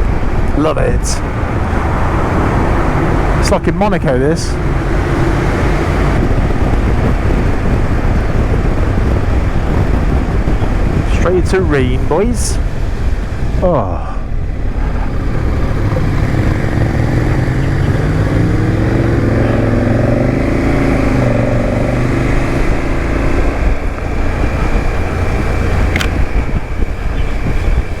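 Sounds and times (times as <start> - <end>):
motorcycle engine: 0.0 - 11.2, 12.4 - 28.0
wind rushing on microphone: 0.0 - 28.0
sharp click: 25.9 - 26.2.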